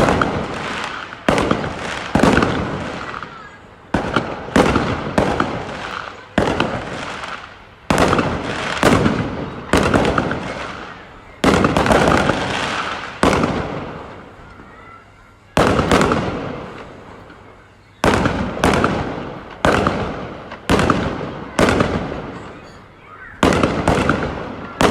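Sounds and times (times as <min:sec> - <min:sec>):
fireworks bangs with crackle: 0:00.0 - 0:24.9.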